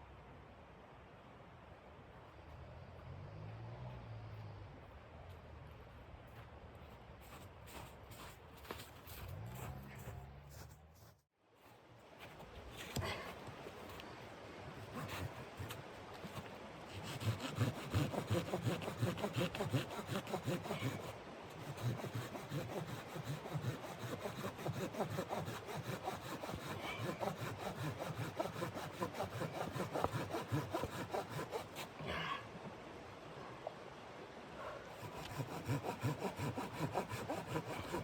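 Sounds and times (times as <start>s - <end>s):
hand saw cutting wood: 14.8s - 32.1s, 34.9s - 38.0s.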